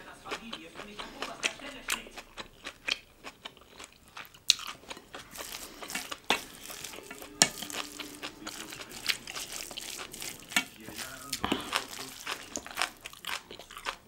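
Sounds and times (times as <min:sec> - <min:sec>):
chewing and crunching food: 0:00.0 - 0:14.0.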